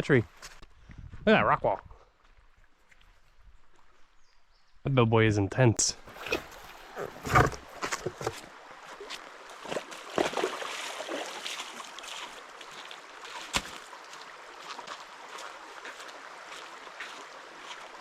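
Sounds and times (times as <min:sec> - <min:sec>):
creek water running: 0:05.6 - 0:18.0.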